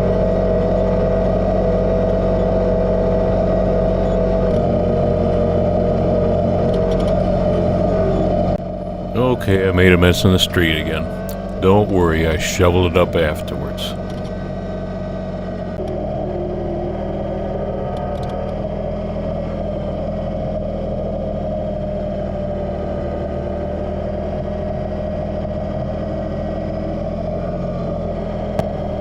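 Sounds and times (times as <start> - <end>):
tractor diesel engine running: 0.0 - 17.9, 27.4 - 29.0.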